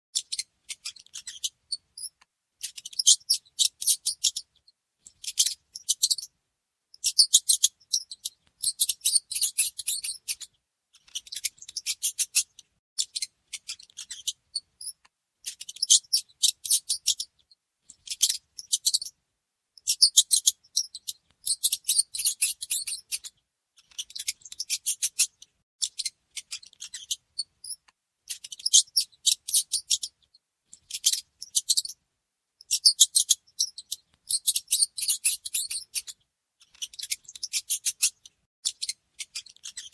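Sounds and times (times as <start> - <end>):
mice squeaking: 0.2 - 6.3, 7.0 - 19.2, 19.8 - 32.0, 32.6 - 39.9.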